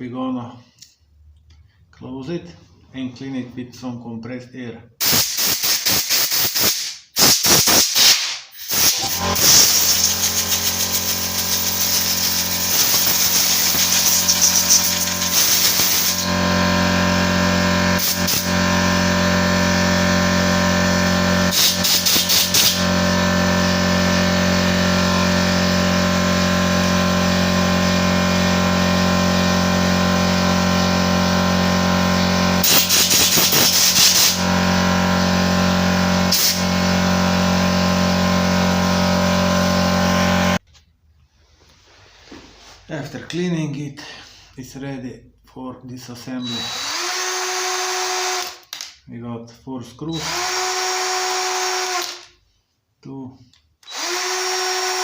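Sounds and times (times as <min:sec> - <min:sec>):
compressed air hissing bursts: 0:05.0 - 0:16.3, 0:21.5 - 0:22.8, 0:32.6 - 0:34.4.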